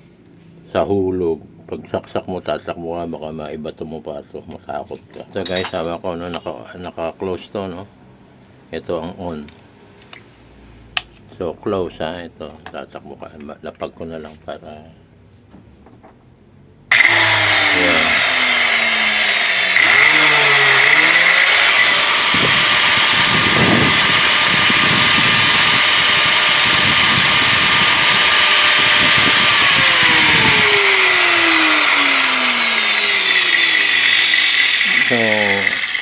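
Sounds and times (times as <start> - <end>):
electric grinder high whine: 16.9 - 36.0.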